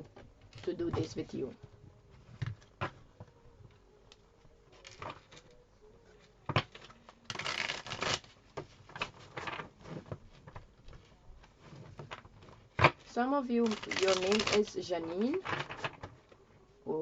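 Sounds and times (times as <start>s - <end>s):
cards shuffling: 6.5s - 16.2s.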